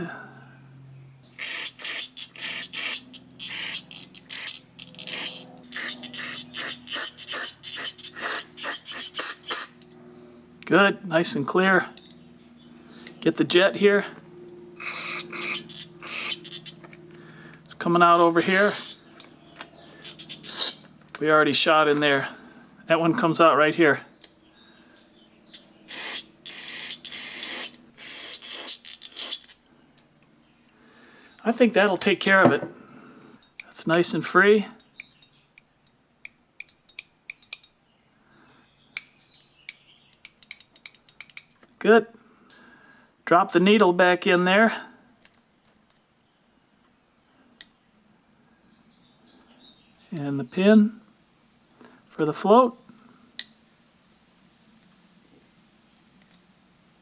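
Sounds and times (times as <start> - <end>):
aerosol spray hissing: 1.4 - 9.8, 14.8 - 16.8, 18.2 - 19.0, 25.9 - 29.4.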